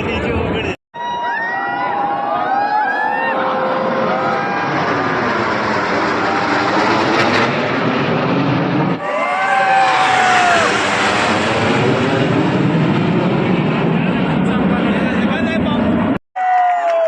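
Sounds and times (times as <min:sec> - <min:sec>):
crowd voices and shouts: 0:00.0 - 0:07.2, 0:08.9 - 0:11.5
jet aircraft roaring overhead: 0:00.0 - 0:16.2.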